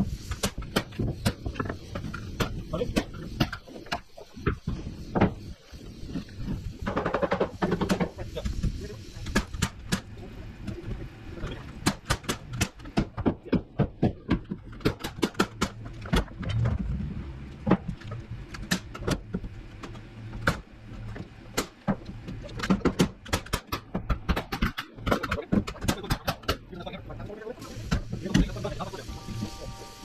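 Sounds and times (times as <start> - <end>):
low rumble: 16.3 - 18.7.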